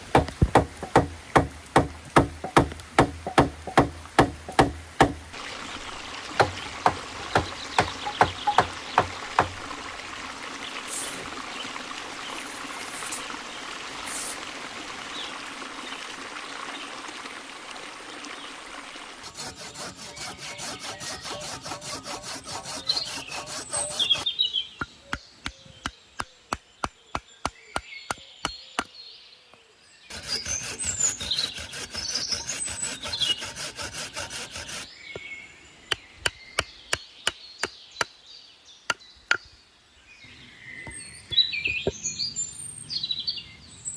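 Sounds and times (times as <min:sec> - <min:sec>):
sharp knocks on wood: 0:00.0 - 0:05.3, 0:06.4 - 0:09.7
hand saw sawing wood: 0:00.0 - 0:05.4, 0:06.4 - 0:09.7, 0:19.2 - 0:24.3, 0:30.1 - 0:34.9
birds chirping: 0:00.0 - 0:09.8, 0:19.2 - 0:29.3, 0:29.9 - 0:43.9.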